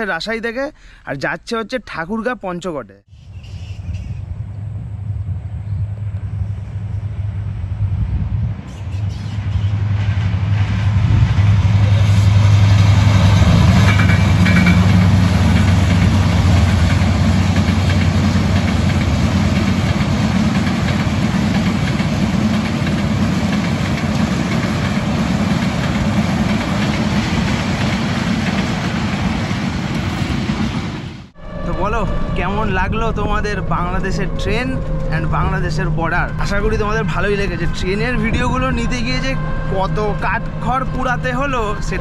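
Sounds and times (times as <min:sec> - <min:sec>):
diesel locomotive droning: 0:03.1 - 0:42.0
noisy rumble: 0:03.3 - 0:42.0.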